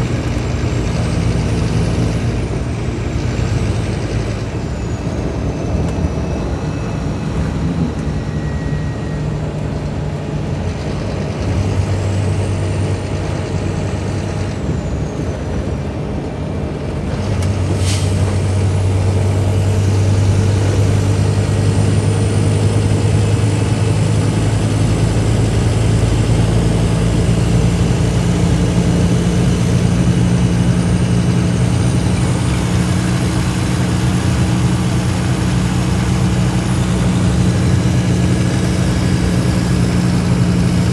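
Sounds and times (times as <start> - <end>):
diesel bus engine running: 0.0 - 40.9
faint high whine: 4.7 - 10.1.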